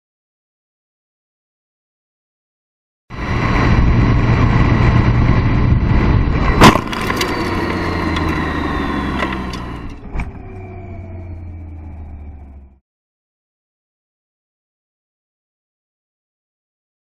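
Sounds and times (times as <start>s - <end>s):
car engine and road noise: 3.1s - 12.8s
car collision impact: 6.6s - 8.4s.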